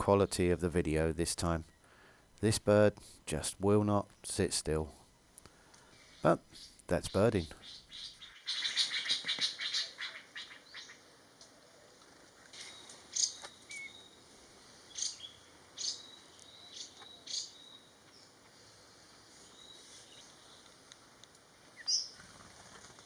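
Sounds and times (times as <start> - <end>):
faint forest background noise: 0.0 - 23.0
birds chirping and calling: 5.8 - 11.9, 12.6 - 18.7, 21.8 - 22.6.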